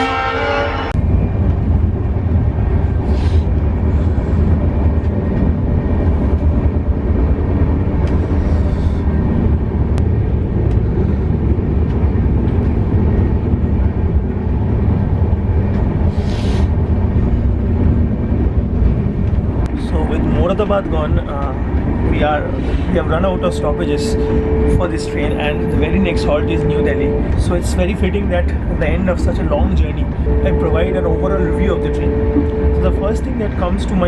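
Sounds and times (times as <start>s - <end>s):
train rumbling on rails: 0.0s - 34.0s.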